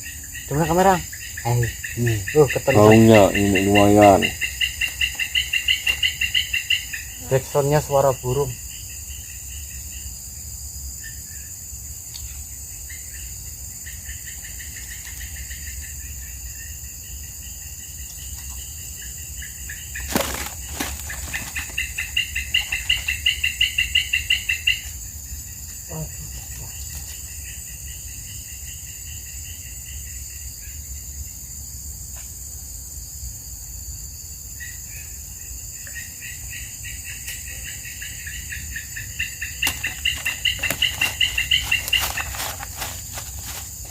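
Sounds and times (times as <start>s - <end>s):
high insect hiss: 0.0s - 43.9s
bird calling in rapid trills: 19.4s - 24.9s, 38.4s - 43.9s.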